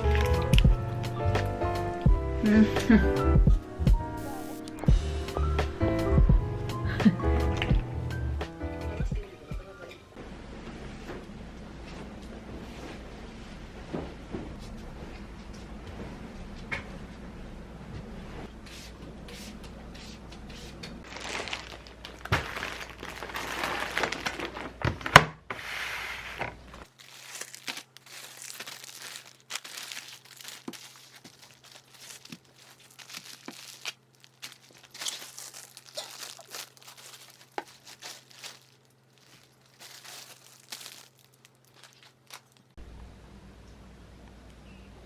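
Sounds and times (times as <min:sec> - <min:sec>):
crinkling and rustling wrapping: 0:00.0 - 0:01.8, 0:21.0 - 0:25.2, 0:26.8 - 0:42.8.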